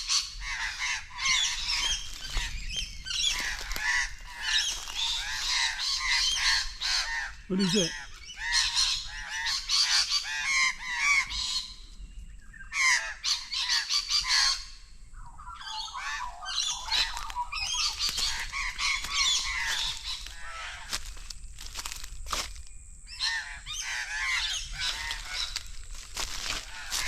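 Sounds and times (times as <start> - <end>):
birds giving alarm calls: 0.0 - 11.6, 15.6 - 21.0, 23.1 - 27.0.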